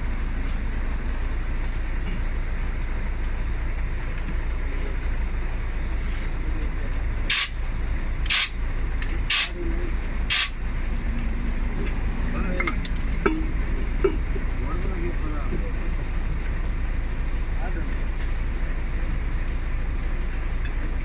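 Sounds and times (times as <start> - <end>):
low engine rumble: 0.0 - 21.0
compressed air hisses: 7.3 - 7.6, 10.3 - 10.5.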